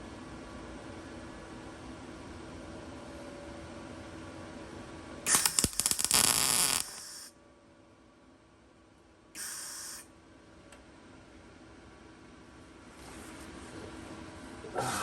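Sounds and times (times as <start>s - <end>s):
welder arc crackling and sputtering: 5.3s - 7.3s.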